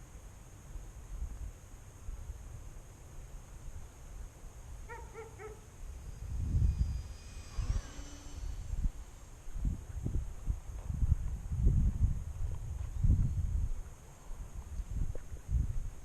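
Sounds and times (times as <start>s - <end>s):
faint falling whine: 2.5s - 13.5s
wind buffeting microphone: 4.9s - 16.0s.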